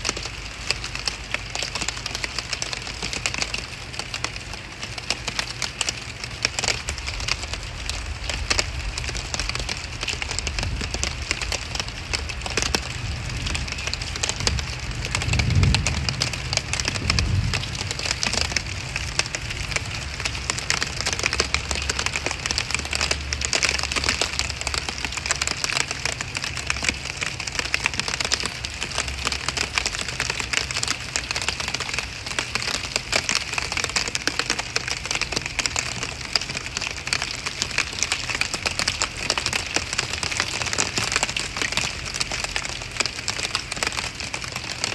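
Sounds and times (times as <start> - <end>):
heavy rain falling: 0.0 - 44.9
low rumble: 12.9 - 20.2.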